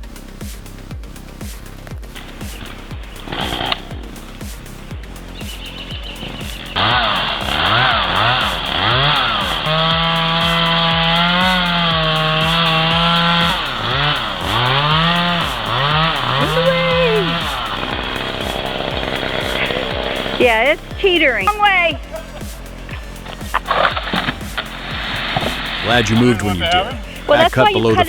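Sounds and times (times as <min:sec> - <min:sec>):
chainsaw engine revving: 0:05.3 - 0:21.0, 0:22.3 - 0:28.0.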